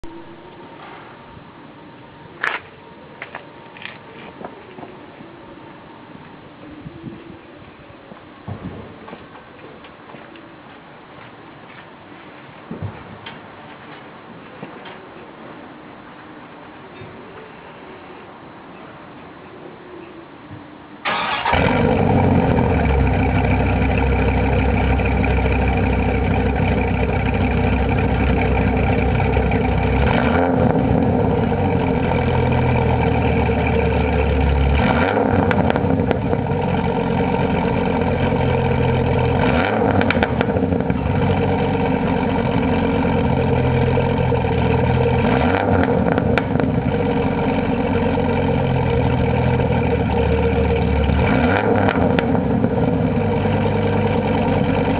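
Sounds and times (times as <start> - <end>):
car engine starting and idling: 21.0 - 54.9.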